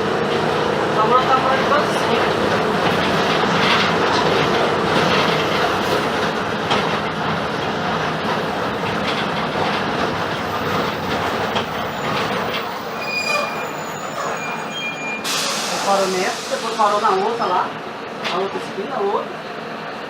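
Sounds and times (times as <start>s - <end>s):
diesel bus engine and road noise: 0.0s - 20.0s
high-pitched squeal: 8.6s - 16.9s.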